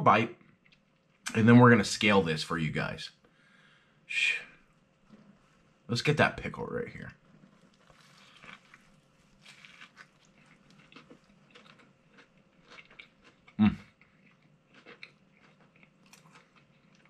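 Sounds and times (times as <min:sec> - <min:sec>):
crunchy food being chewed: 0:07.1 - 0:17.0.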